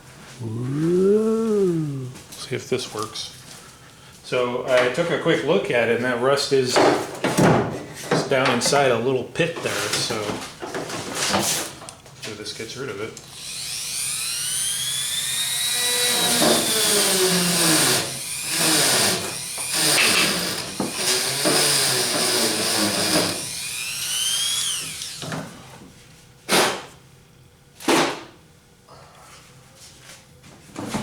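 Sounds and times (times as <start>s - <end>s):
rotary tool grinding metal: 13.4s - 25.2s.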